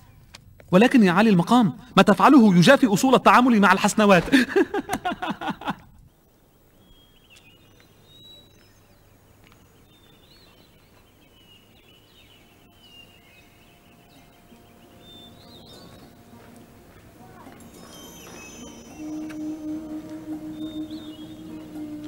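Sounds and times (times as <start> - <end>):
faint birds chirping: 0.0 - 22.0
steady background hum: 8.9 - 22.0.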